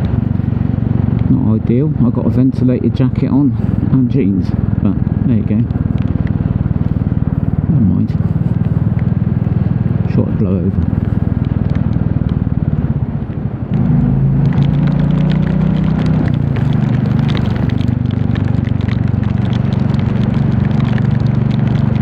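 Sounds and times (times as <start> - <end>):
single-cylinder motorcycle engine: 0.0 - 22.0
rain ticking: 10.0 - 22.0.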